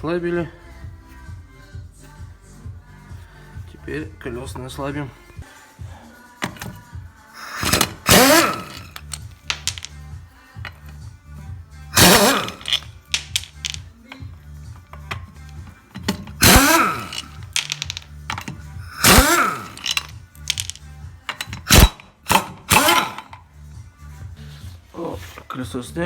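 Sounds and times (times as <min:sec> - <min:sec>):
background music with steady beat: 0:00.0 - 0:26.0
wrench clicking on wheel bolts: 0:07.4 - 0:10.0, 0:12.0 - 0:23.4.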